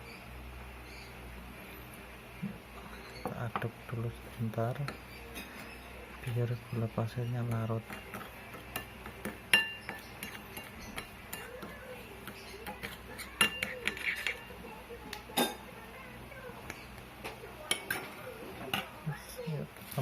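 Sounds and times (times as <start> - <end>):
spoon clinking against glass: 7.5 - 11.7, 12.3 - 14.5.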